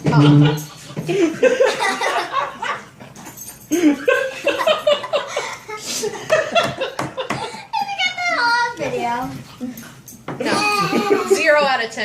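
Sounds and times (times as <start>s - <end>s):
people laughing: 0.0s - 3.0s, 3.8s - 7.6s, 10.4s - 11.7s.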